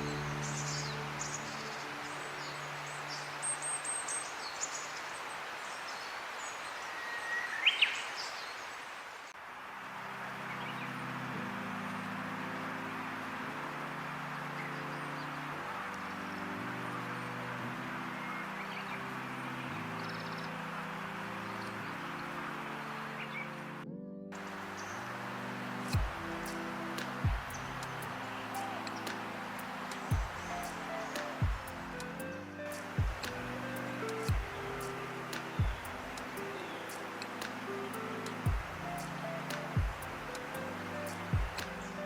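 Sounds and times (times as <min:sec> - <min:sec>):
music with held low notes: 0:00.0 - 0:03.8, 0:10.4 - 0:42.0
outdoor hiss: 0:00.0 - 0:42.0
small birds chirping: 0:24.5 - 0:42.0.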